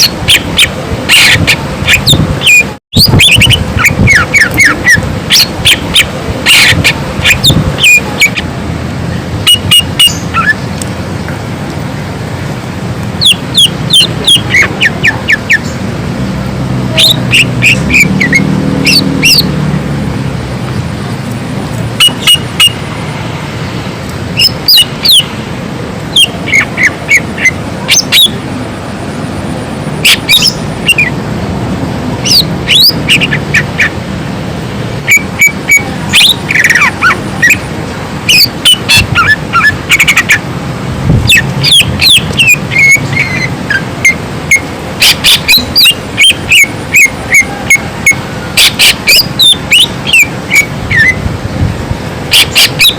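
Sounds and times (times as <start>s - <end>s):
bird singing whistled notes: 0.0s - 8.4s, 9.5s - 10.6s, 13.2s - 15.8s, 30.0s - 31.1s, 41.3s - 51.2s.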